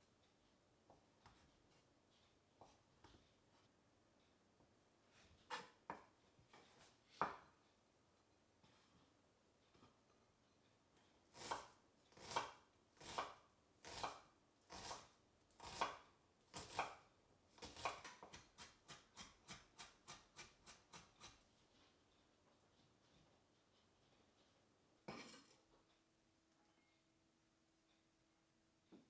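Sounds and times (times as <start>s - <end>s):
knife chopping on cutting board: 5.5s - 6.0s, 11.4s - 17.0s, 17.6s - 21.4s.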